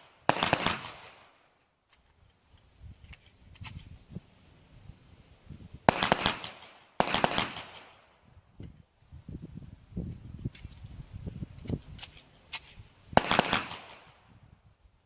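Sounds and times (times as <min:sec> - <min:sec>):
pistol shots with echo: 0:00.0 - 0:01.4, 0:05.9 - 0:08.1, 0:13.2 - 0:14.2.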